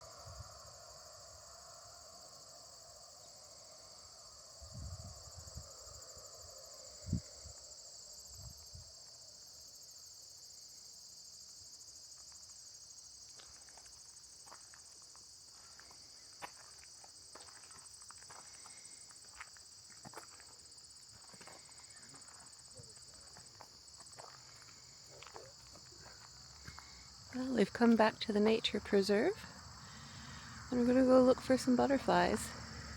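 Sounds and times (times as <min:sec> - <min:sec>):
crickets trilling: 0:00.0 - 0:32.9.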